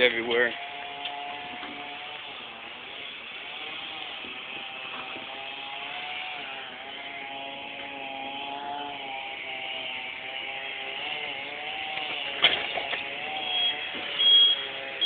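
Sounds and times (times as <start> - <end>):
machinery engines running: 0.0 - 15.0.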